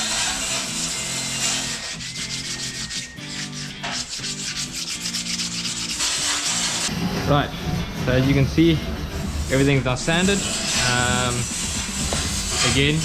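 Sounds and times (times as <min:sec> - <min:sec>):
sandpaper rasping on metal: 0:00.0 - 0:06.9, 0:09.5 - 0:13.0.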